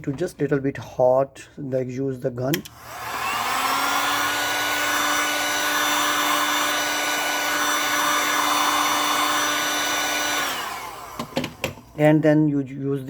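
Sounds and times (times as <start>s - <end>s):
heat gun fan humming: 2.5s - 12.0s.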